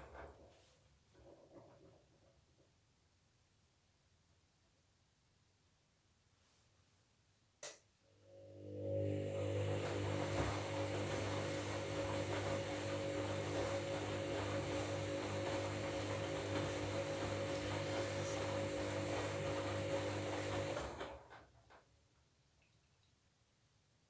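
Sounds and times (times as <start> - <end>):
washing machine motor hum: 8.3 - 21.5.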